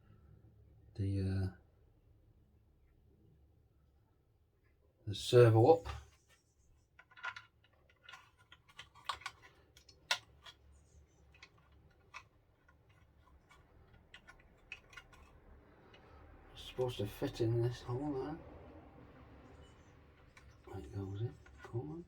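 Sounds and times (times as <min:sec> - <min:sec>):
small plastic parts clicking: 0:07.0 - 0:16.1, 0:20.1 - 0:21.8.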